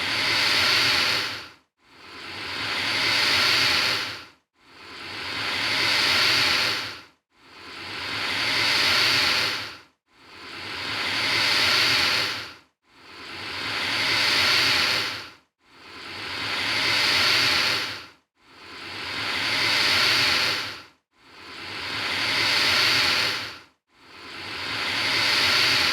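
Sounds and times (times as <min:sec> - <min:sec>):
alligator hissing: 0:00.0 - 0:01.4, 0:02.2 - 0:04.2, 0:04.9 - 0:07.0, 0:07.7 - 0:09.7, 0:10.4 - 0:12.5, 0:13.2 - 0:15.2, 0:15.9 - 0:18.0, 0:18.7 - 0:20.8, 0:21.4 - 0:23.5, 0:24.3 - 0:25.9.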